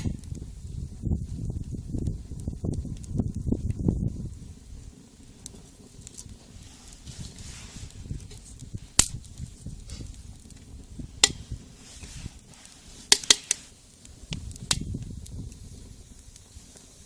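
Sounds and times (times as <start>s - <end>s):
low rustling: 4.4s - 14.7s
dry wood snapping: 8.3s - 9.4s, 10.4s - 11.4s, 13.1s - 13.6s, 14.3s - 15.1s.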